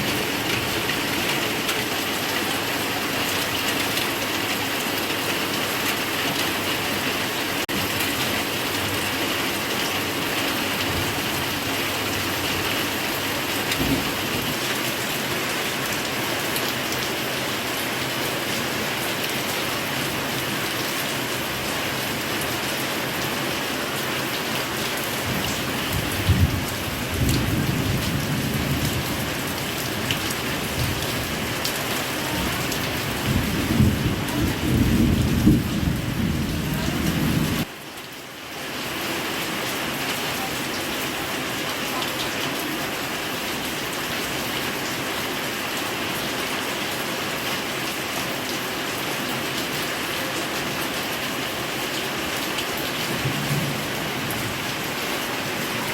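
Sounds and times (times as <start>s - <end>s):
heavy rain pouring: 0.0s - 55.9s
low rumble of thunder: 13.7s - 14.6s, 25.3s - 31.6s, 32.2s - 37.7s, 53.2s - 54.7s.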